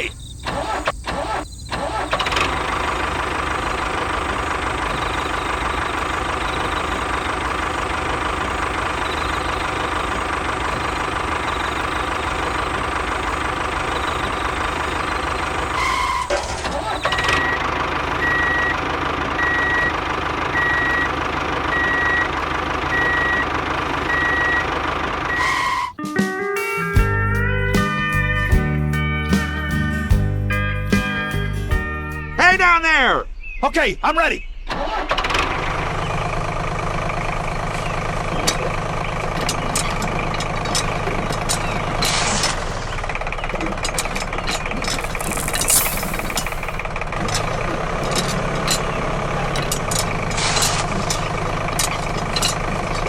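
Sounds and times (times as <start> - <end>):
engine running: 0.0 - 26.0, 27.0 - 32.4, 34.6 - 53.0
vehicle reversing alarm beeping: 0.0 - 26.0, 35.8 - 53.0
loud hiss: 44.9 - 46.8.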